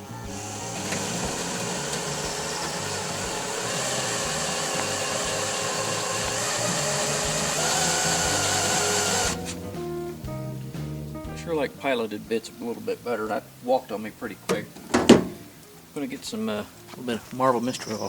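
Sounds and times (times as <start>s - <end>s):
electric drill cutting metal: 0.0s - 9.6s.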